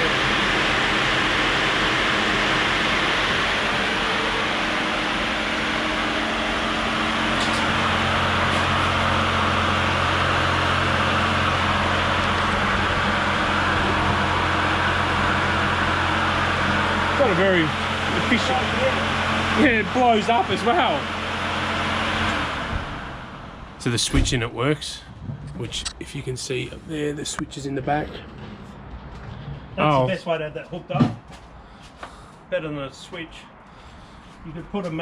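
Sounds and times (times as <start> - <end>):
low hum: 0.0 - 19.3, 22.6 - 29.8
electric fan running: 0.0 - 23.7
diesel engine idling: 0.0 - 25.0.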